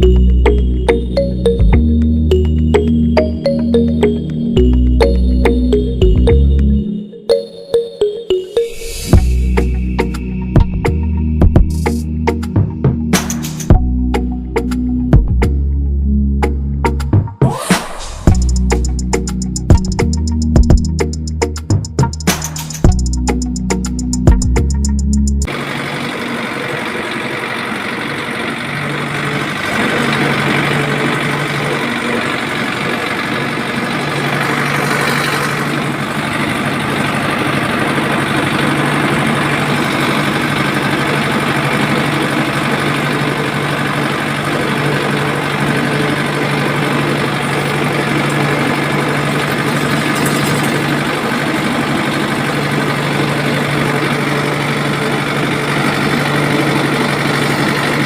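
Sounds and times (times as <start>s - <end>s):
machine humming and rattling: 18.0s - 58.0s.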